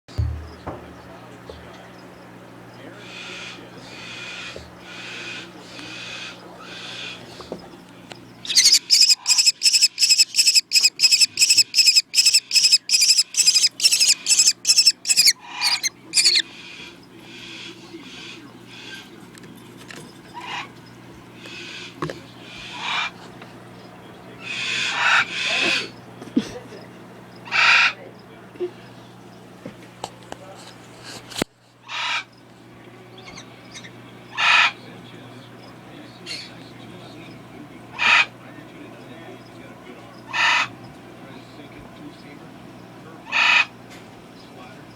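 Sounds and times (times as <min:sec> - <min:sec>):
kestrel shrill calls: 0:08.4 - 0:16.4.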